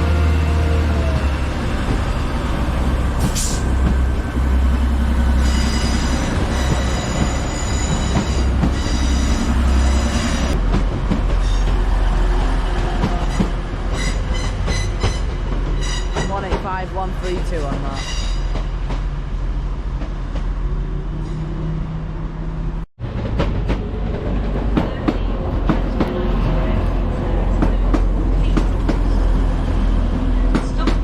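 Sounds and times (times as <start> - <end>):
diesel train engine drone: 0.0 - 31.0
train wheels squealing: 5.4 - 10.5
train clank: 5.4 - 11.9, 12.8 - 19.1.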